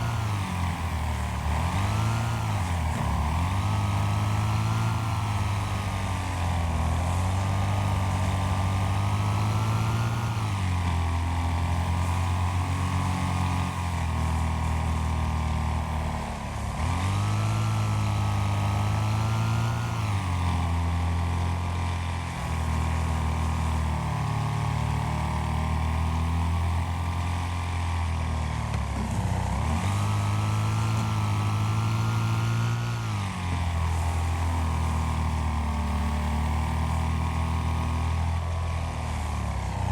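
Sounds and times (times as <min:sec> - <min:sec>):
racing lawn mower engines: 0:00.0 - 0:39.9.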